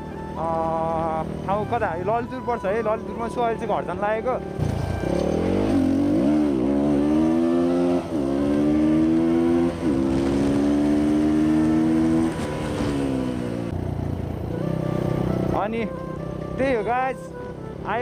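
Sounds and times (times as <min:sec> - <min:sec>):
motorcycle engine accelerating: 0:04.4 - 0:16.8.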